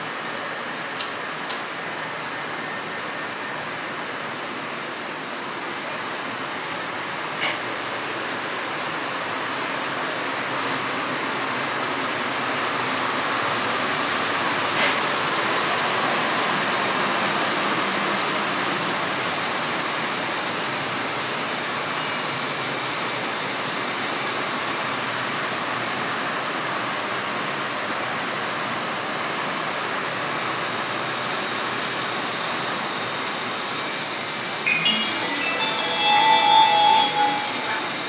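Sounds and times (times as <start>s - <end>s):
electric train humming: 34.7s - 38.0s.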